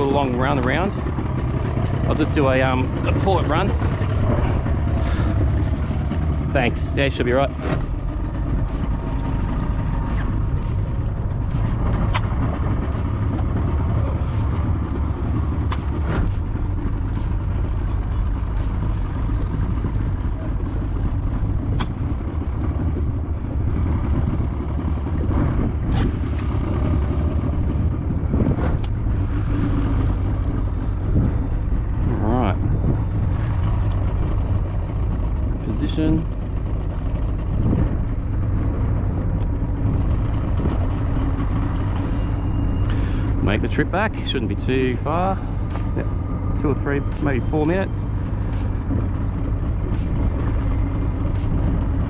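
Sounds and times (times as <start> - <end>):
outboard motor running: 0.0 - 52.0.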